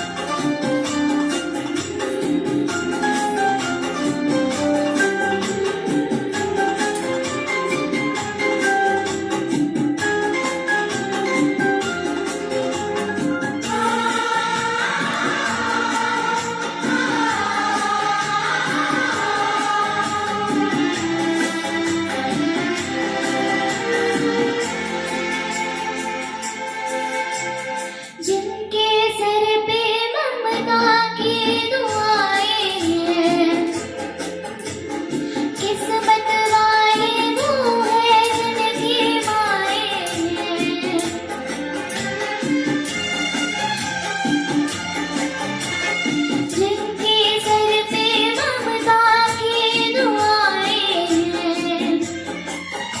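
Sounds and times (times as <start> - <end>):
instrumental accompaniment: 0.0 - 28.5, 30.6 - 53.0
girl singing: 1.3 - 9.1, 13.6 - 27.6, 28.2 - 34.0, 35.6 - 42.2, 46.4 - 52.2.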